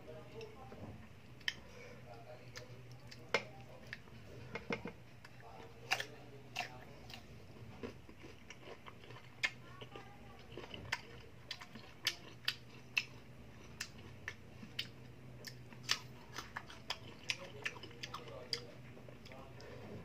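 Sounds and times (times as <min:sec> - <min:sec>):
faint low hum: 0:00.0 - 0:20.0
person chewing crisp fruit: 0:05.1 - 0:19.8.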